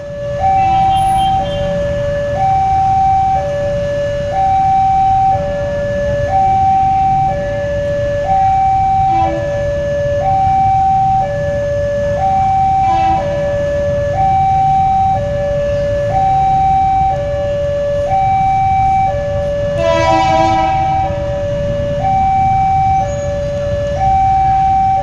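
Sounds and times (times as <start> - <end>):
two-tone electronic warning alarm: 0.0 - 25.0
horn-like blast: 9.0 - 9.6, 12.8 - 13.6, 19.8 - 21.1.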